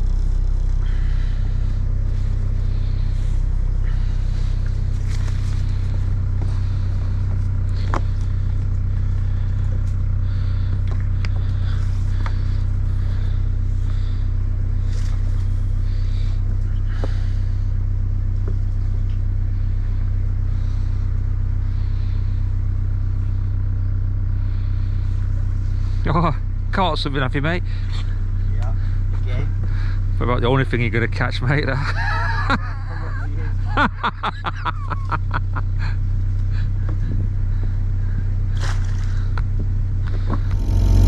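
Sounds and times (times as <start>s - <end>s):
boat engine humming: 0.0s - 25.9s, 39.2s - 41.0s.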